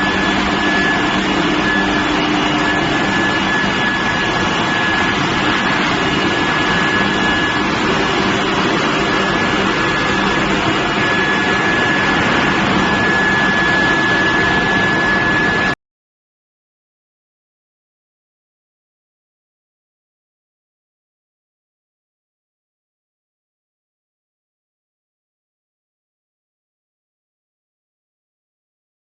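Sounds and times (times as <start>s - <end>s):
high whine: 0.0s - 15.8s
industrial furnace noise: 0.0s - 15.8s.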